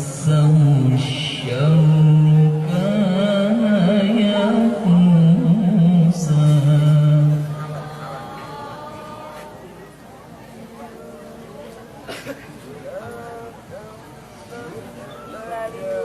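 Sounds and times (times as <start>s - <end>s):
man reciting melodically: 0.0s - 8.7s.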